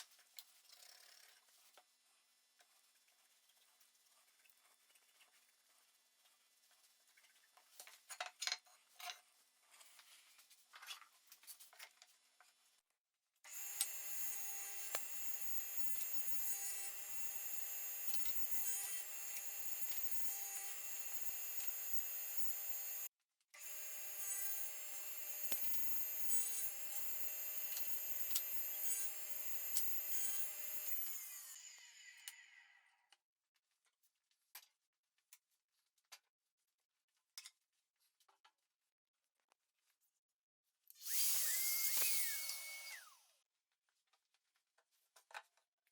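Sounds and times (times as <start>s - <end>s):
power tool working wood: 13.5s - 32.3s, 41.0s - 43.2s.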